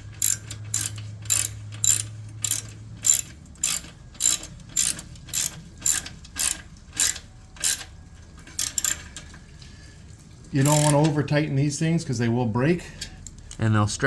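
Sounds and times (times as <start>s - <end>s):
ratchet clicking: 0.0s - 7.9s, 8.5s - 9.1s, 10.6s - 11.1s.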